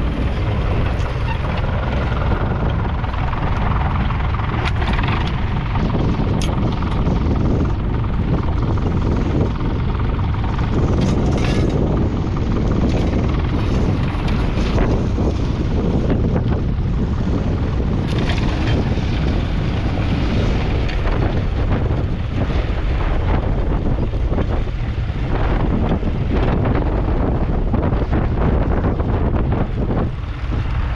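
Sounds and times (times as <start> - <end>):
tractor diesel engine running: 0.0 - 30.9
wind buffeting microphone: 0.0 - 30.9.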